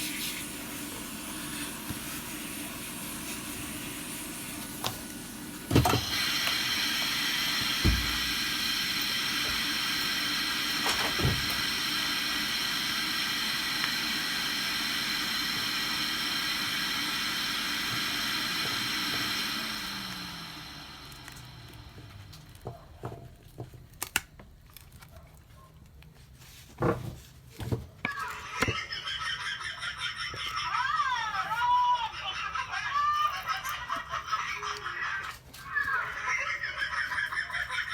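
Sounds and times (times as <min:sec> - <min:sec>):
air blower hissing: 0:00.0 - 0:22.4.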